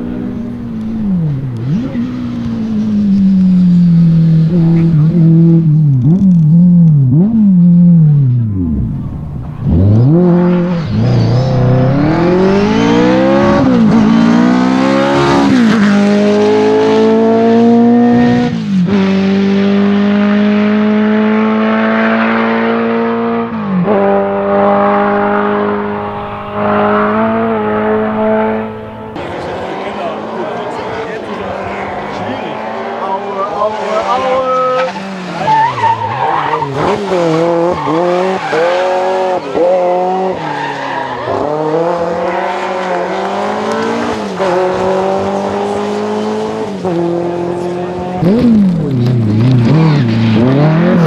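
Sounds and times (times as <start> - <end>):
car engine revving: 0.0 - 51.0.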